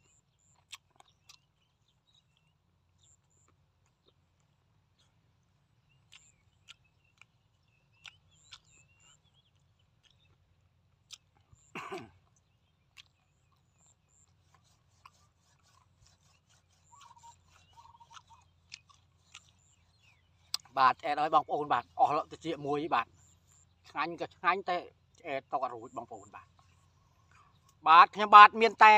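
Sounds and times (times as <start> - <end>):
man chewing: 0.1 - 20.7.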